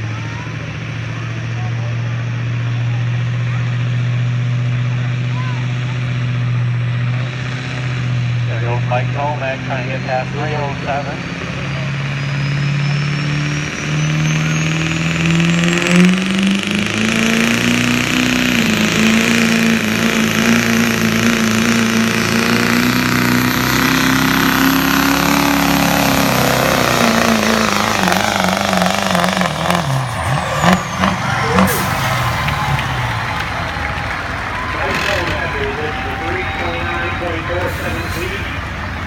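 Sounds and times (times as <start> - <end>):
diesel truck engine under load: 0.0 - 39.0.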